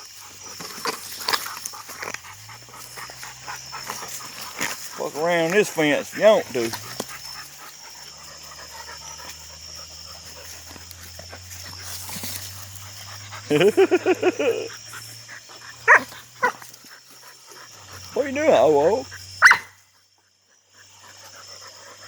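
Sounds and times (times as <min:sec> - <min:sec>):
dog barking: 0:15.8 - 0:16.6, 0:18.7 - 0:19.8.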